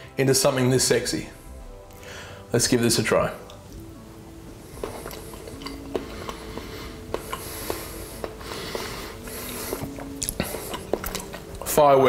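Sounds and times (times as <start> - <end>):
person chewing: 4.6 - 11.7
wet mouth clicks and smacks: 9.9 - 11.7.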